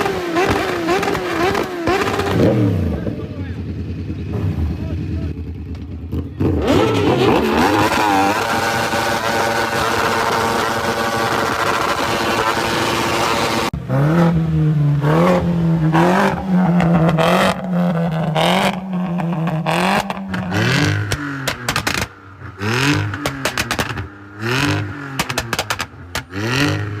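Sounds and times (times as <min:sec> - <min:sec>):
car engine revving hard: 0:00.0 - 0:03.1, 0:06.4 - 0:27.0
exhaust crackles and pops: 0:16.8 - 0:26.8.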